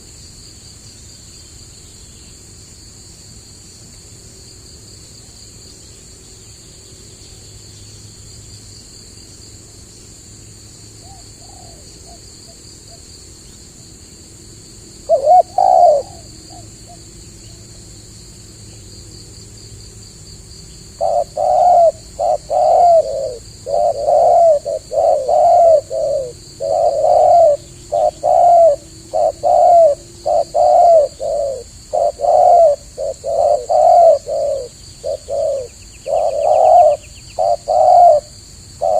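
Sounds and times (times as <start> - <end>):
high insect drone: 0.0 - 38.9
dove cooing: 11.0 - 12.2, 15.0 - 17.0, 21.0 - 38.9.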